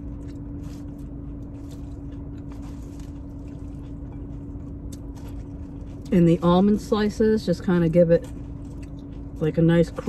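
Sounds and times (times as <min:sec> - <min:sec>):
person chewing salad: 0:00.0 - 0:10.0
steady low hum: 0:00.0 - 0:10.0
soft crunches: 0:00.1 - 0:06.6.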